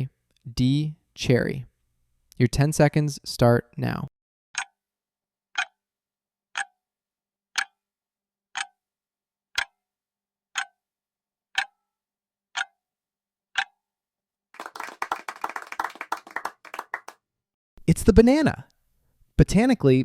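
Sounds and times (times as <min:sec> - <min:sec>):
clock ticking: 0:04.6 - 0:04.8, 0:05.6 - 0:05.8, 0:06.5 - 0:06.8, 0:07.5 - 0:07.8, 0:08.5 - 0:08.8, 0:09.6 - 0:09.8, 0:10.6 - 0:10.8, 0:11.6 - 0:11.8, 0:12.6 - 0:12.8, 0:13.6 - 0:13.8
clapping: 0:14.6 - 0:17.2.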